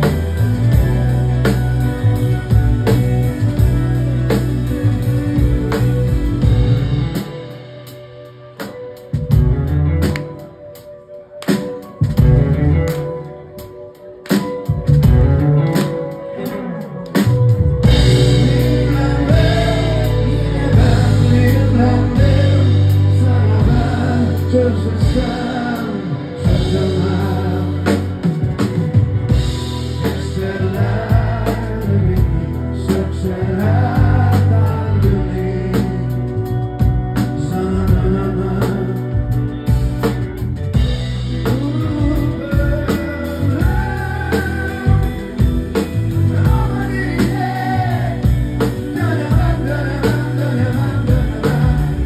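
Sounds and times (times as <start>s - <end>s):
low bass notes: 0.0s - 8.2s, 9.2s - 10.3s, 12.0s - 13.1s, 14.8s - 15.8s, 17.3s - 52.0s
person singing: 0.0s - 40.0s, 41.0s - 52.0s
live rock band: 0.0s - 52.0s.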